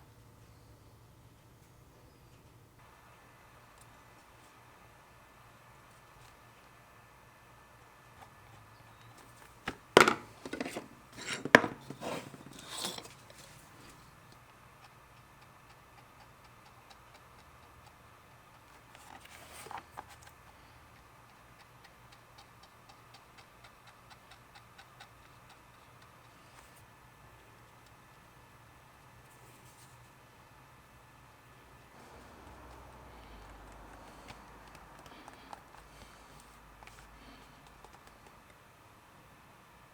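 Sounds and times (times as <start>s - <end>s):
scraping strokes: 10.6s - 14.1s.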